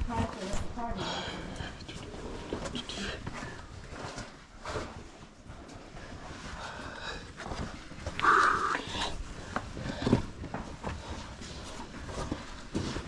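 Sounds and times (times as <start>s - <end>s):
person grunting with effort: 8.2s - 9.2s.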